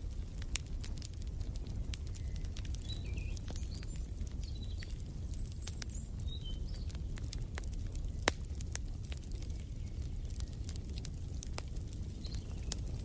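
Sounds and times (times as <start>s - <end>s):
fire low rumble: 0.0s - 13.0s
wood fire crackling: 0.0s - 13.0s.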